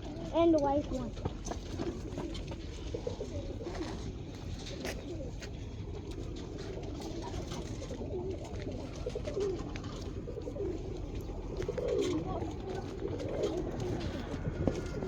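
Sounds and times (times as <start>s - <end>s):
pigeons cooing: 1.6s - 15.0s.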